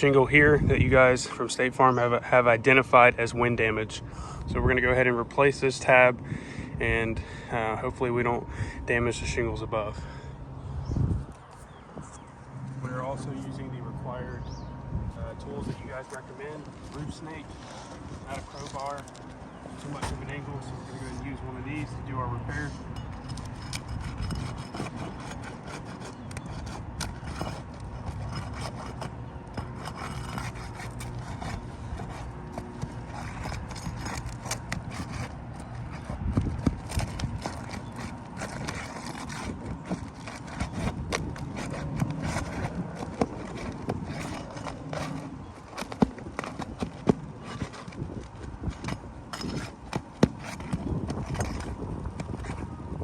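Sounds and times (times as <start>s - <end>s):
tool scraping under shingles: 0.0s - 53.0s.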